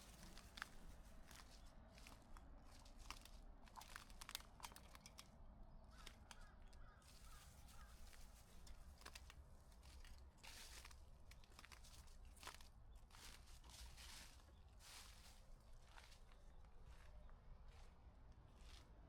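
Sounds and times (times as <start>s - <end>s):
footsteps on dry leaves: 11.5s - 16.2s.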